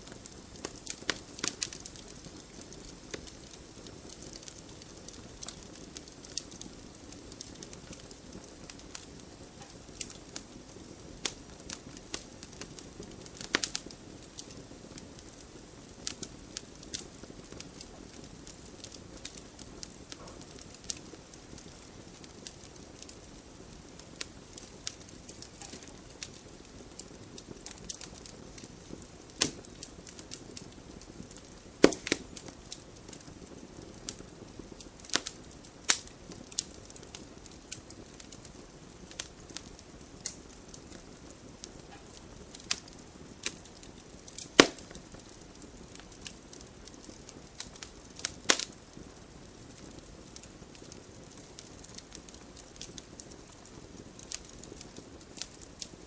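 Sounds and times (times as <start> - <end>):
steady low hiss: 0.0 - 56.0
wood fire crackling and popping: 0.0 - 56.0.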